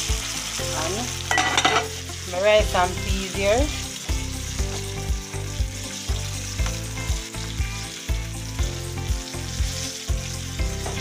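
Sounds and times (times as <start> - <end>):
chicken deep-frying sizzle: 0.0 - 11.0.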